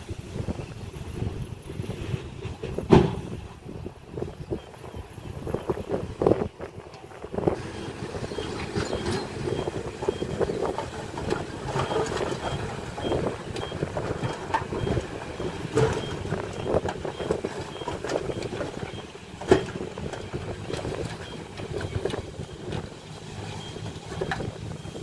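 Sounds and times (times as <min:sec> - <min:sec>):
heavy earthmoving machinery running: 0:00.0 - 0:25.0
clanks and knocks: 0:08.3 - 0:22.9.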